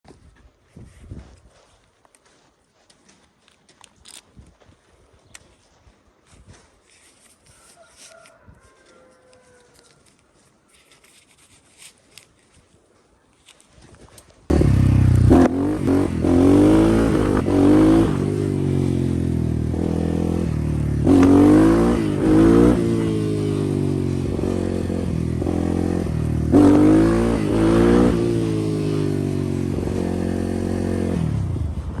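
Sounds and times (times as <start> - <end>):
motorbike engine revving: 14.5 - 32.0.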